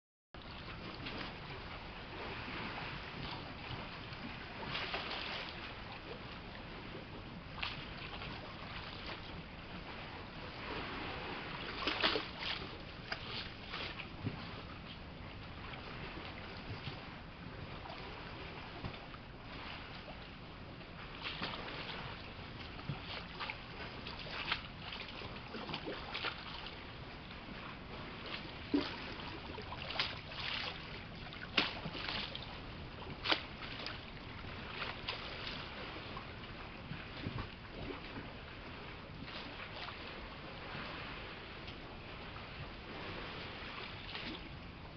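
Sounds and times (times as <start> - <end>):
water lapping and splashing: 0.4 - 44.9
wind noise: 0.4 - 44.9
sharp water slaps: 29.8 - 30.8, 31.5 - 32.3, 33.2 - 33.5.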